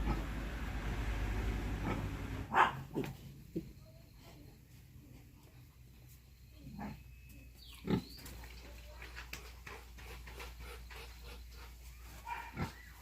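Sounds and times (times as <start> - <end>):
pig grunting: 1.7 - 2.4.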